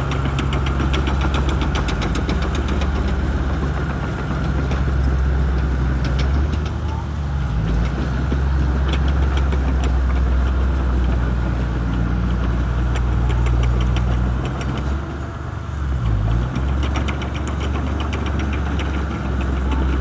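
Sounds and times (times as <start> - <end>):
bulldozer diesel engine running: 0.0 - 20.0.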